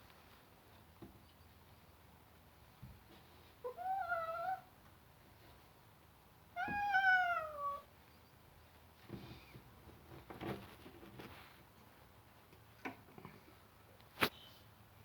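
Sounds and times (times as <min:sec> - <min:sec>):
cat meowing: 0:03.6 - 0:04.7, 0:06.6 - 0:07.9.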